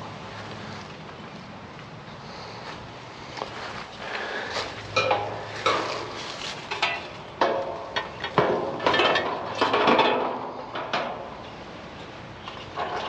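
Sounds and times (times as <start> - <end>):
metal knocks and clanks: 4.9 - 11.3.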